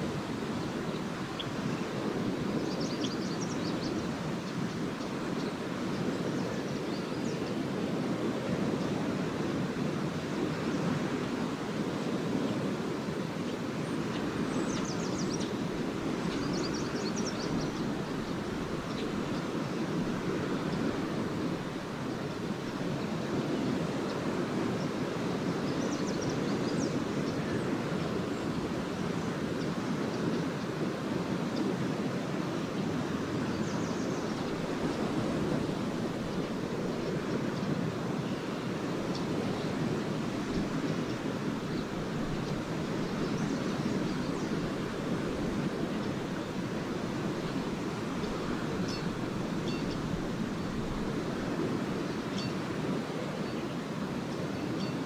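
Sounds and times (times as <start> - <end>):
waves washing onto beach: 0.0 - 55.0
swallows twittering: 0.6 - 7.5, 13.9 - 21.0, 25.6 - 28.6, 33.4 - 51.4.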